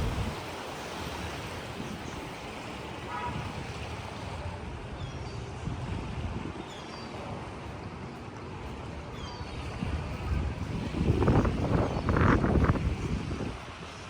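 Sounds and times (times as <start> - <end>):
heavy rain rushing: 0.0 - 1.6
wind gusts buffeting microphone: 0.0 - 2.6, 5.5 - 6.7, 8.9 - 14.0
wind: 0.0 - 14.0.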